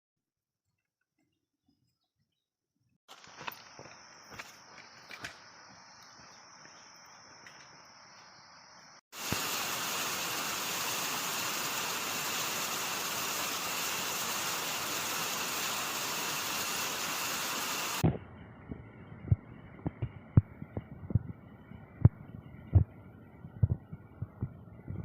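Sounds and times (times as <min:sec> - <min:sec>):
faint high insect drone: 0:03.1 - 0:18.0
loud rush of water: 0:09.2 - 0:18.0.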